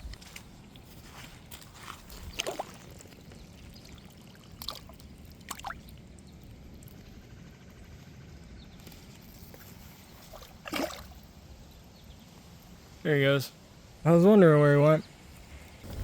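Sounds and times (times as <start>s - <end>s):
wind rumbling on microphone: 0.0s - 3.8s, 15.4s - 16.0s
water splashes and drips: 0.1s - 7.0s, 10.2s - 11.3s.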